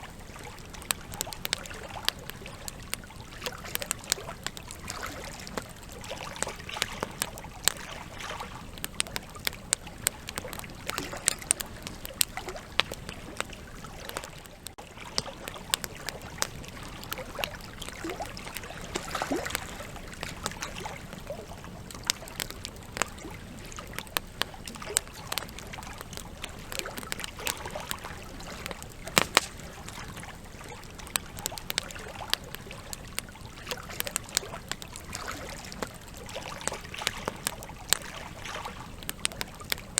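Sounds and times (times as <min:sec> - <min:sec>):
campfire crackling and popping: 0:00.0 - 0:39.9
hiss of flames: 0:19.9 - 0:35.1.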